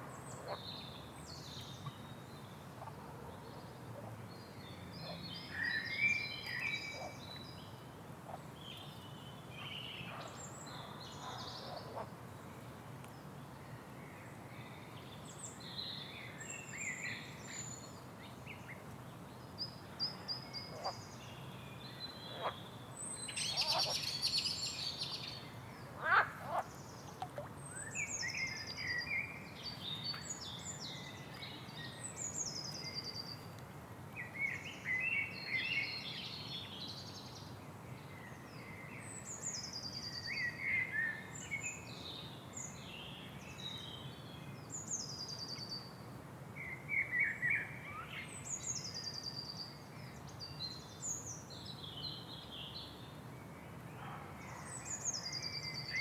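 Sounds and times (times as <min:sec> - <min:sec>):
low background noise: 0:00.0 - 0:56.0
songbirds singing: 0:13.0 - 0:33.6, 0:46.6 - 0:56.0.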